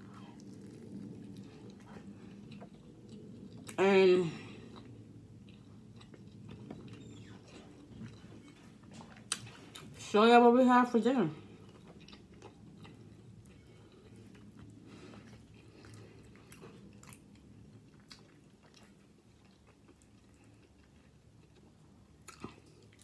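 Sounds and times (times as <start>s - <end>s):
close-up chewing: 0.0s - 3.8s, 4.5s - 10.0s, 11.4s - 23.0s.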